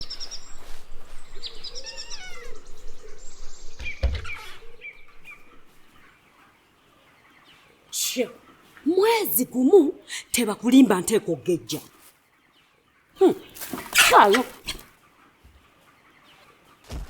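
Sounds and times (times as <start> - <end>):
chicks cheeping: 0.0 - 8.8.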